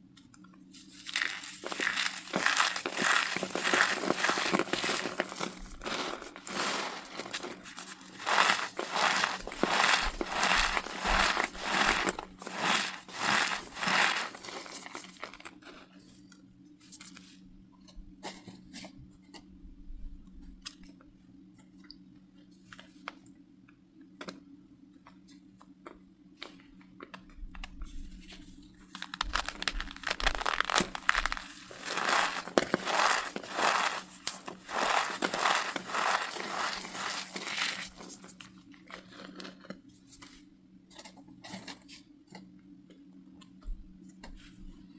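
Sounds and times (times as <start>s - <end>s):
cornstarch crunching squeakily: 1.0s - 15.5s, 28.8s - 38.5s.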